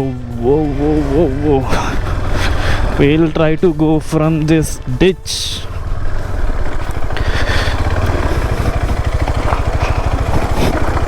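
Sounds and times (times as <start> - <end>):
motorcycle engine idling pulse: 5.3 - 11.0.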